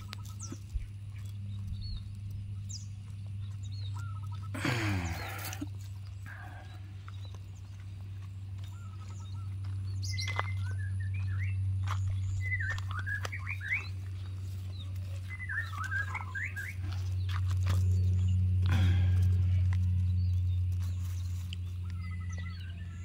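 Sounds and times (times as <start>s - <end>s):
small birds chirping: 0.0s - 23.0s
steady low hum: 0.0s - 23.0s.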